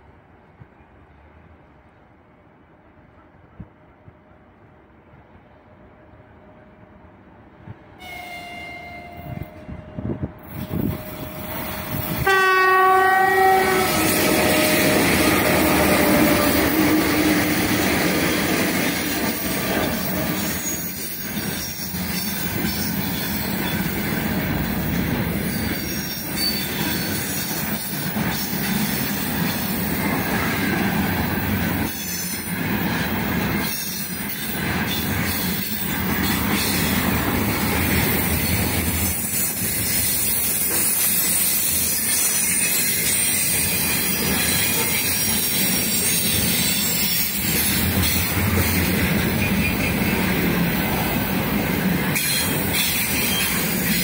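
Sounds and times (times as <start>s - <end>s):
locomotive horn blast: 8.0s - 10.1s, 11.0s - 16.9s
wheel-on-rail noise: 13.3s - 54.0s
wagons clacking over rail joints: 13.4s - 54.0s.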